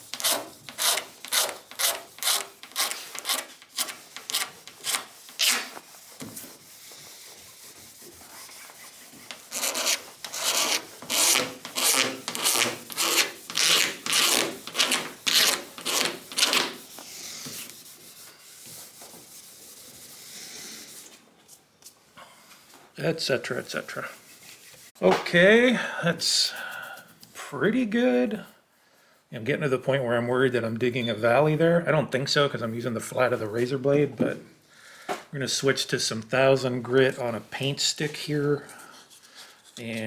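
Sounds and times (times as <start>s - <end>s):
razor blade scraping paint: 0.0s - 18.7s.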